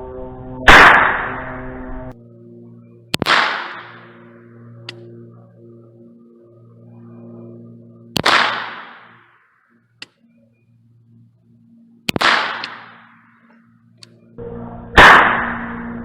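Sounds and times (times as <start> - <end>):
steady low hum: 0.0 - 16.0
gunshots with echo: 0.7 - 1.6, 3.2 - 4.1, 8.2 - 9.2, 12.1 - 13.2, 15.0 - 15.9.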